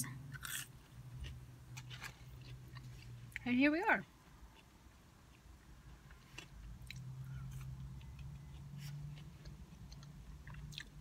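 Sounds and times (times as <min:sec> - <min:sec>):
low steady hum: 0:00.0 - 0:11.0
chewing food: 0:04.2 - 0:11.0.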